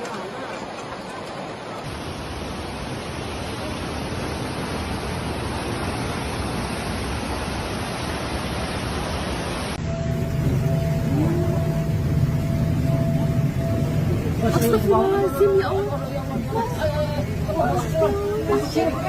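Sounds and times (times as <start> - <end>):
rushing water: 0.0 - 19.0
low hum with steady tone: 9.8 - 19.0.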